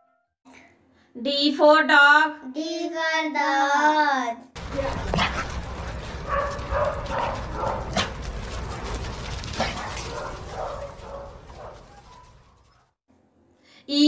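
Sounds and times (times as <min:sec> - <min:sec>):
steady low rumble: 0:04.6 - 0:12.8
dogs yipping and barking: 0:04.6 - 0:13.0.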